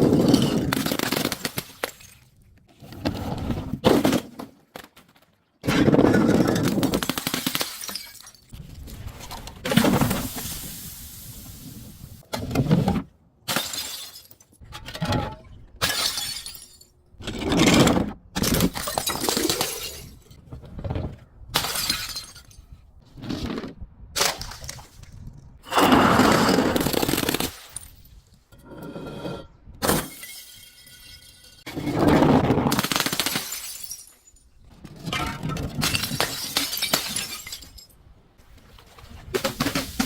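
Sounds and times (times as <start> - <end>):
glass bottles smashing: 7.0 - 8.6, 13.5 - 14.6, 15.8 - 17.0, 21.6 - 22.7, 29.8 - 31.7, 33.0 - 34.5, 35.2 - 38.0.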